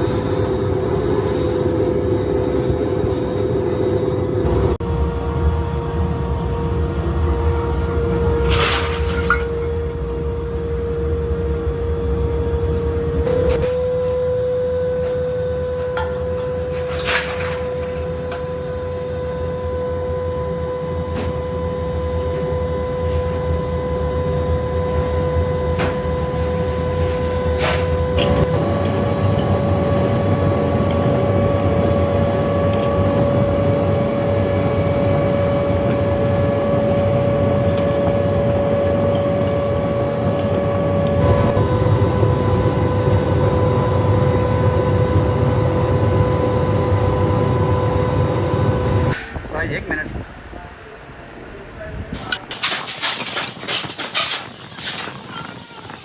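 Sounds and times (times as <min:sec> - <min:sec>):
machine motor humming: 0:17.7 - 0:49.2.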